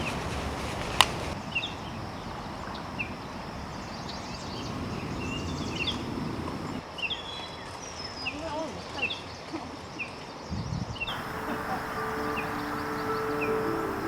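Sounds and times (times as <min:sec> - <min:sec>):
outdoor background noise: 0:00.0 - 0:14.0
high bird chirps: 0:11.1 - 0:14.0.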